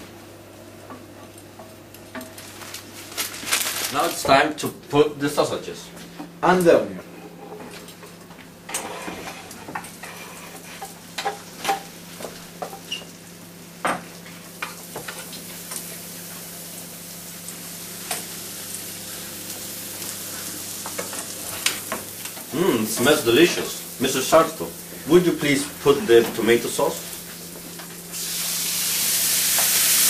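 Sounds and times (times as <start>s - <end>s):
sausages frying in butter: 9.1s - 30.0s.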